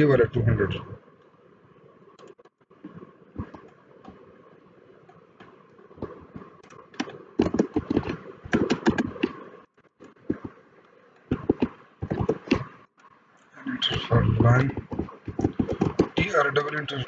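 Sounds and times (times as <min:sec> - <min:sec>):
typing on a keyboard: 0:07.0 - 0:09.4, 0:11.3 - 0:12.7, 0:14.6 - 0:16.3.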